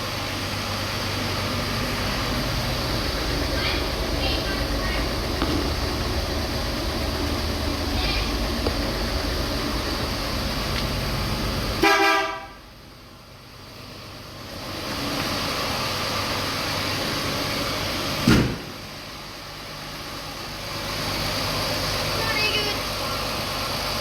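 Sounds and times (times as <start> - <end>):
engine running noise: 0.0 - 24.0
vehicle horn toot: 11.8 - 12.6
sharp knock: 18.2 - 18.7.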